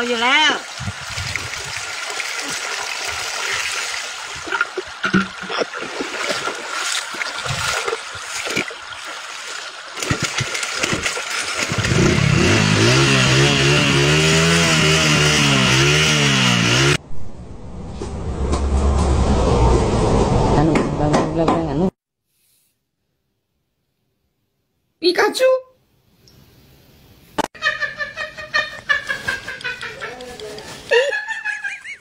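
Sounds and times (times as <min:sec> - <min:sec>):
water splashing and sloshing: 0:00.0 - 0:12.4
motorcycle engine running: 0:11.7 - 0:17.0.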